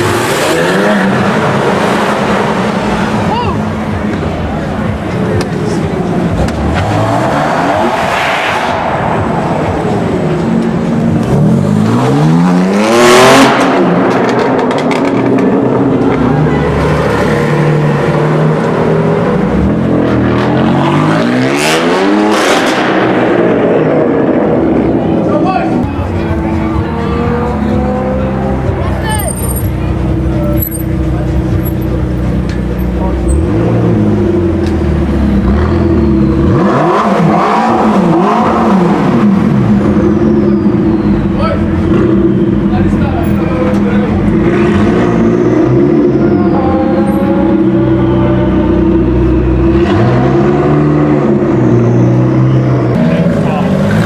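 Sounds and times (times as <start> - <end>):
sports car engine revving: 0.0 - 54.0.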